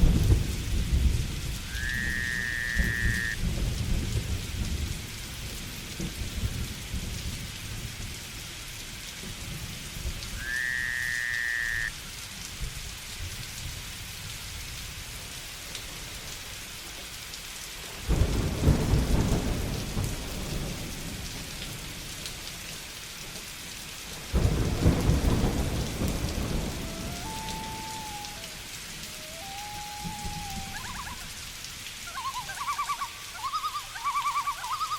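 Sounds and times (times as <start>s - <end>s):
low thunder rumbles: 0.0s - 8.2s, 18.0s - 22.1s, 24.2s - 31.6s
steady rain falling: 0.0s - 34.9s
short whistled call: 27.0s - 31.3s, 32.1s - 34.9s.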